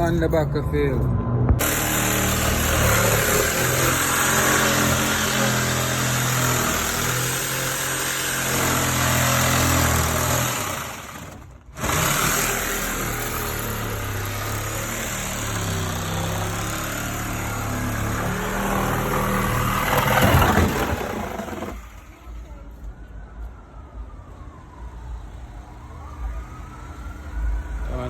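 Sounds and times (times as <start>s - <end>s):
heavy diesel engine running: 1.6s - 22.2s
noisy rattling: 1.6s - 22.2s.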